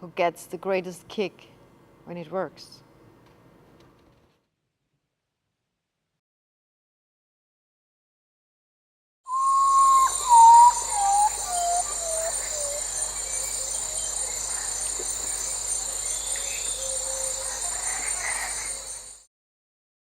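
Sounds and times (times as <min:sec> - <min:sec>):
bird whistling descending notes: 0:09.3 - 0:14.0
high-pitched insect chorus: 0:09.3 - 0:19.3.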